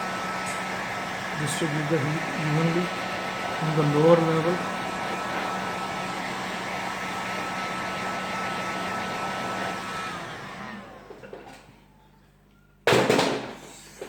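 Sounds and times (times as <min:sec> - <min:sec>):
heat gun blowing hot air: 0:00.0 - 0:10.9
fan winding down: 0:00.0 - 0:11.7.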